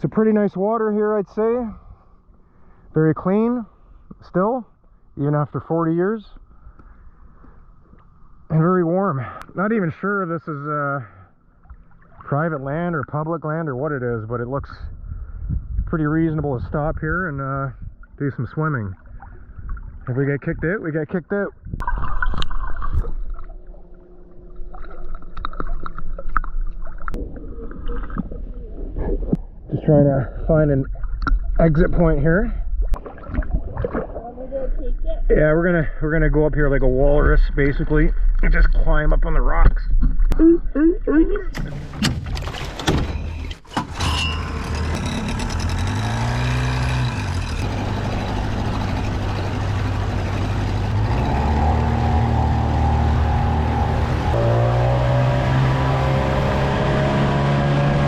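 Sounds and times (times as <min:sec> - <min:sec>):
outboard motor humming: 0:22.0 - 0:27.2, 0:43.9 - 0:58.0.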